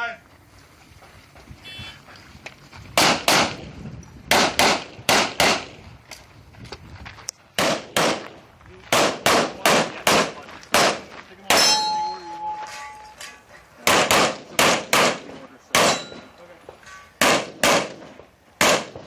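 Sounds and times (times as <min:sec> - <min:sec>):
pistol shots: 0:03.0 - 0:03.6, 0:04.3 - 0:05.8, 0:07.6 - 0:11.8, 0:13.8 - 0:16.3, 0:17.2 - 0:19.0.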